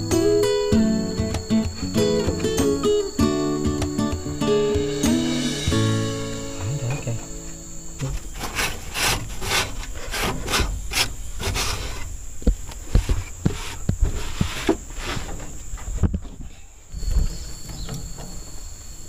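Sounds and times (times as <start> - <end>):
wood scraping rasps: 8.0 - 16.5.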